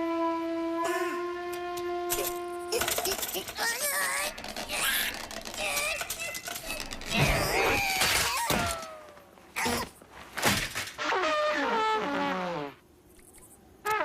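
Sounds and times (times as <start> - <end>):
squeaky sliding vocal noises: 3.6 - 8.8.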